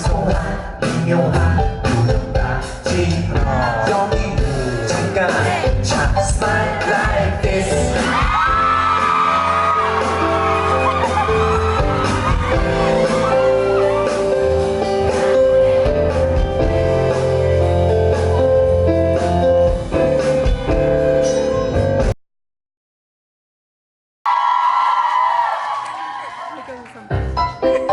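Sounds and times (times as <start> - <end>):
person singing: 0.0 - 18.8
guitar: 0.0 - 22.1
bass: 0.0 - 22.2, 27.1 - 27.9
drums: 0.0 - 22.2.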